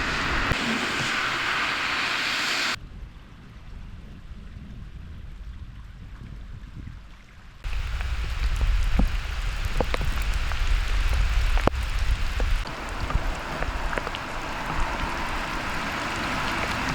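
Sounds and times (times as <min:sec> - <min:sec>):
heavy rain: 0:00.0 - 0:02.8, 0:07.6 - 0:16.9
raindrops clicking on surfaces: 0:07.6 - 0:16.9
deep low rumble: 0:07.7 - 0:16.9.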